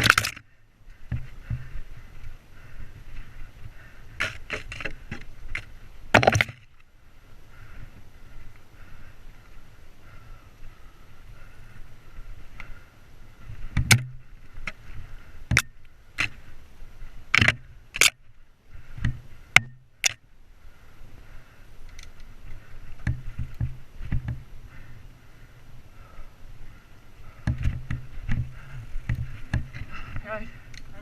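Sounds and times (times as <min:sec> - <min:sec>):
bike knocking and clattering over bumps: 0:01.0 - 0:01.8, 0:23.0 - 0:24.5, 0:27.3 - 0:30.2.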